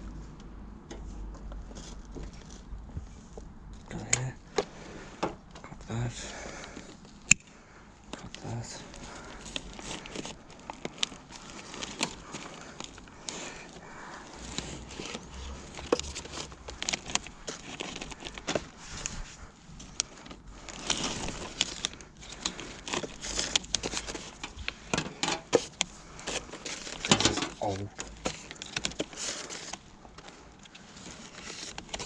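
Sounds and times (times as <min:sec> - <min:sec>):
plastic rustling: 0:01.6 - 0:32.0
plastic clicks and snaps: 0:07.2 - 0:07.5.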